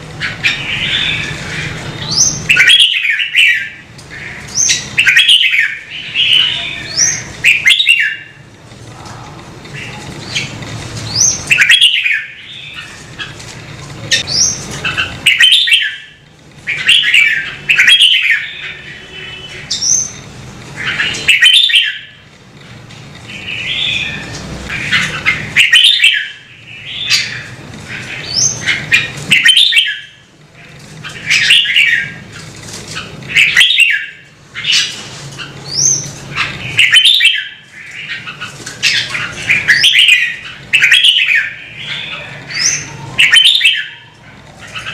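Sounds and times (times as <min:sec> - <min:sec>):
bulbul singing warbled phrases: 0:00.1 - 0:08.5, 0:09.7 - 0:13.4, 0:14.0 - 0:22.3, 0:23.3 - 0:32.4, 0:33.0 - 0:44.9.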